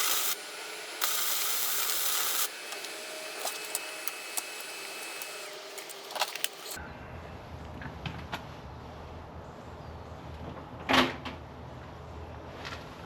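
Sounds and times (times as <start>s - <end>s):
welder arc hissing: 0.0s - 6.8s.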